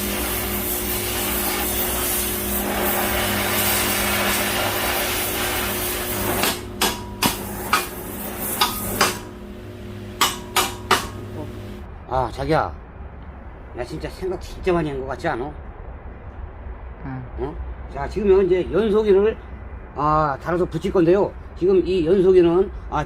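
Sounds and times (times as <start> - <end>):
grinder cutting steel: 0.0 - 11.8
low steady hum: 0.0 - 15.0
hammer blows on metal: 5.8 - 9.5, 10.1 - 11.8.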